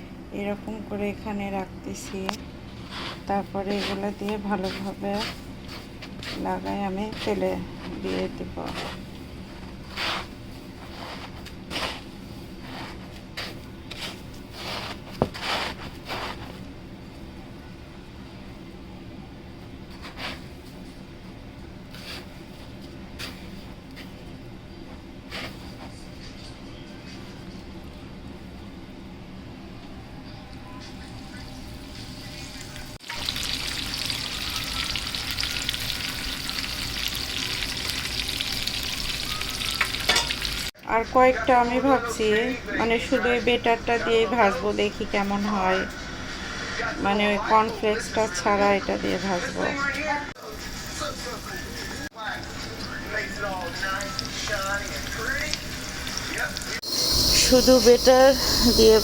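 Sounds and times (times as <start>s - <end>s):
food deep-frying in oil: 31.0s - 40.7s, 50.4s - 59.0s.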